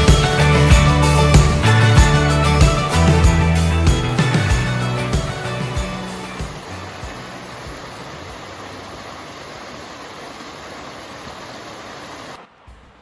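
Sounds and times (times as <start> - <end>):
steady rushing noise: 4.1 - 13.0.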